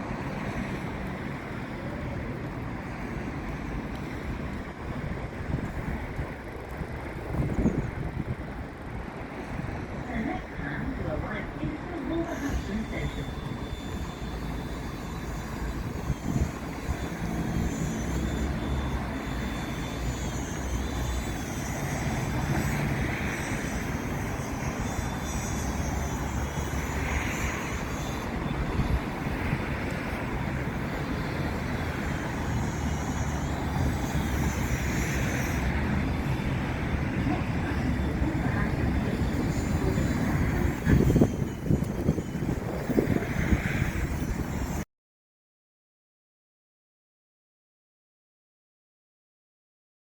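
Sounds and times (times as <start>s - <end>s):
high wavering whine: 0.0s - 44.8s
heavy vehicle rumble: 0.0s - 44.9s.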